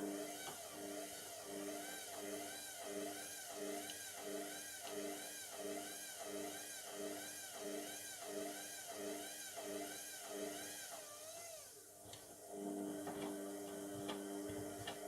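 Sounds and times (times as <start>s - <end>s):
washing machine drum whine: 12.5s - 15.0s.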